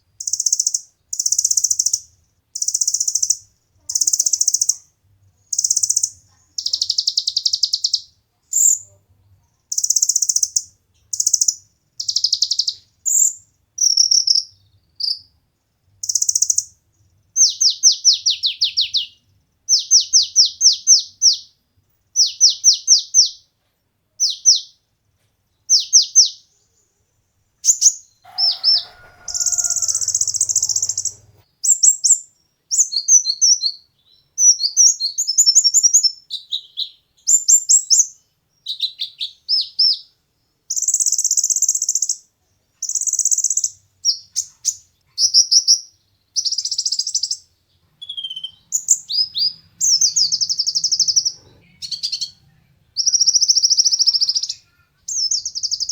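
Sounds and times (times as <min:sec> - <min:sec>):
sunbird chirping and buzzing: 0:27.7 - 0:31.8.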